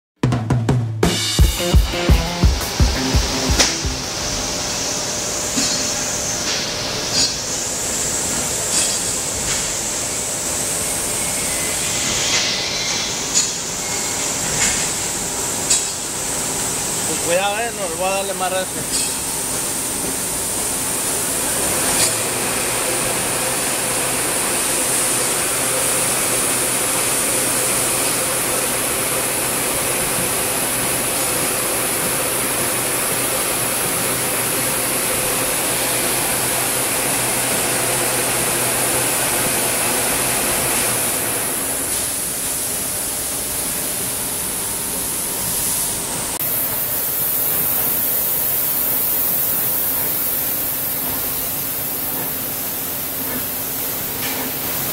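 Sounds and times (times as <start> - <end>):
machine noise: 1.0 - 44.0
lathe hum and whine: 3.0 - 54.9.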